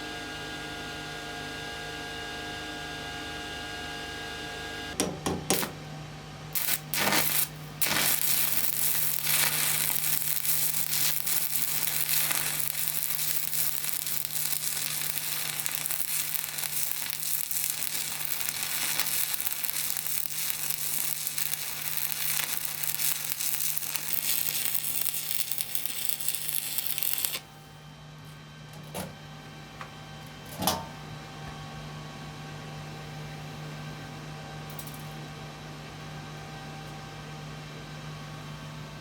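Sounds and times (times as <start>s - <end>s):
welder hum: 4.9s - 5.9s, 6.6s - 27.8s
welding arc crackling: 5.5s - 5.8s, 6.6s - 27.6s.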